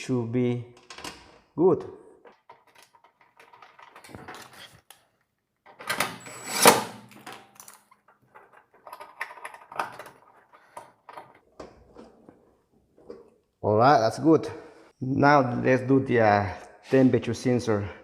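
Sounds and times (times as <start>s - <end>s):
small metal parts rattling: 2.2s - 4.8s, 7.2s - 11.4s
metal parts clattering: 2.3s - 4.8s, 6.6s - 11.4s.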